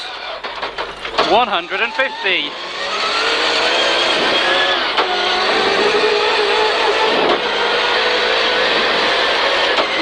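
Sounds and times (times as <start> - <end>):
rally car engine accelerating: 0.0 - 10.0
gear upshifts: 0.1 - 10.0.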